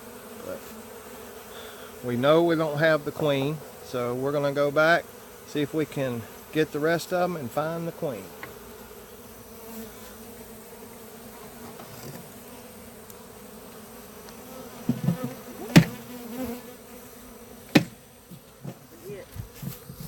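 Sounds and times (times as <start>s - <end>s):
honeybees buzzing: 0.0s - 20.0s
sharp knocks: 14.9s - 16.0s, 17.7s - 18.0s
low thumps: 17.7s - 18.8s.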